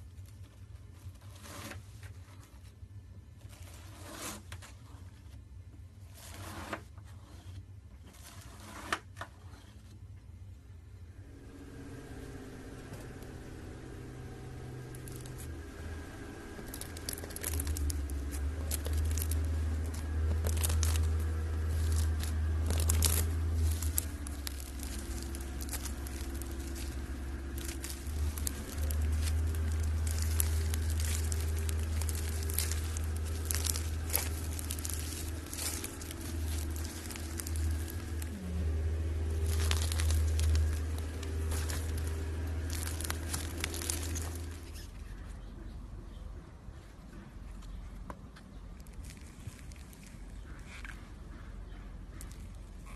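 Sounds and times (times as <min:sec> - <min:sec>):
steady low hum: 0:00.0 - 0:52.9
slime crackling and popping: 0:12.2 - 0:44.9.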